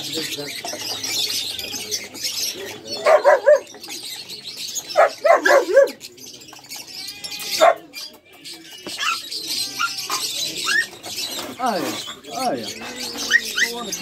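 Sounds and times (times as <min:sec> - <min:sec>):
young dogs yapping: 0:02.8 - 0:03.8, 0:04.8 - 0:06.1, 0:07.4 - 0:08.0.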